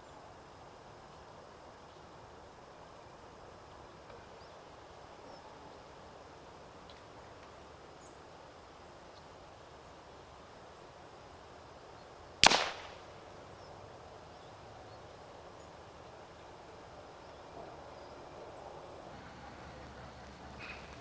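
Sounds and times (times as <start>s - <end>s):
distant suppressed rifle shot: 12.4s - 13.2s.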